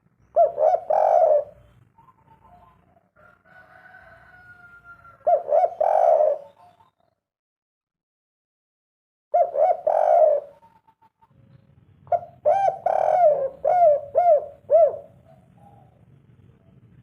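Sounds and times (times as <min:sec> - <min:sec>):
dove cooing: 0:00.3 - 0:07.1, 0:09.3 - 0:16.1.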